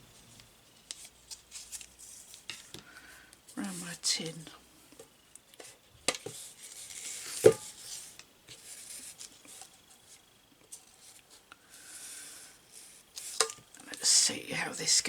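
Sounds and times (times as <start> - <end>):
soft rustling: 5.5 - 11.5.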